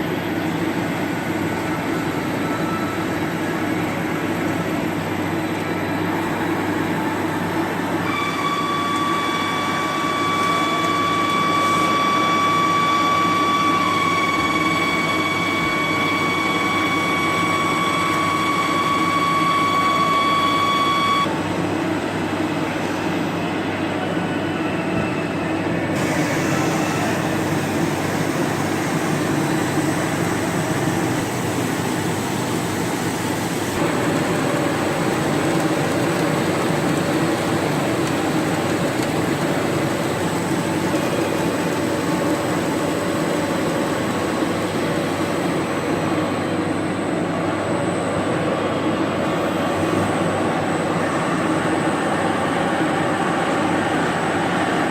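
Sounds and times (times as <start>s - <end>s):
lathe machining metal: 0.0s - 54.9s.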